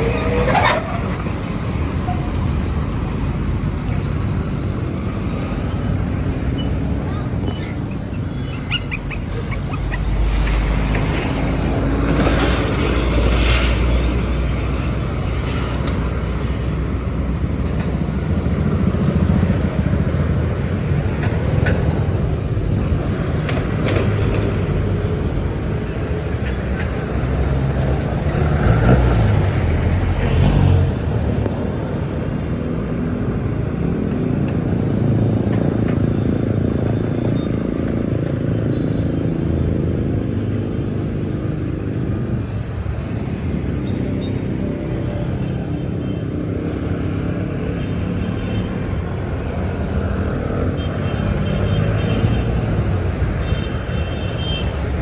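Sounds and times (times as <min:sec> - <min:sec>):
truck engine revving: 0:00.0 - 0:15.8
truck engines rumbling: 0:00.0 - 0:55.0.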